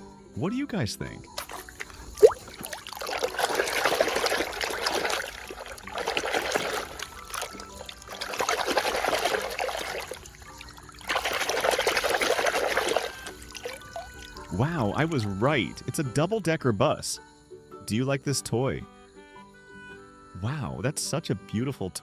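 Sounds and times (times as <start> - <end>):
water stream on toy: 1.3 - 15.4.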